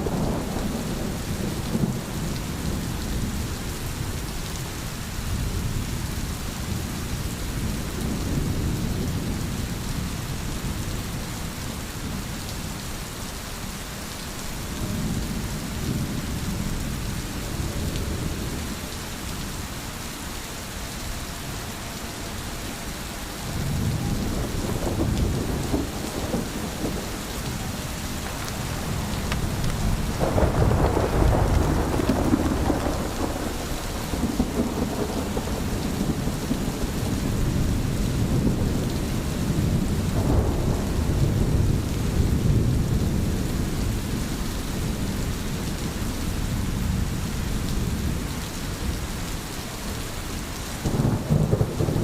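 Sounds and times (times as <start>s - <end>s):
rolling thunder: 0.0s - 3.5s, 23.2s - 45.2s, 50.9s - 52.0s
heavy rain: 0.0s - 52.0s.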